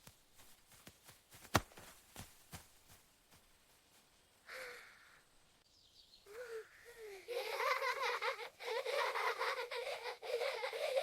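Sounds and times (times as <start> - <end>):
high-pitched voice laughing: 6.3 - 11.0.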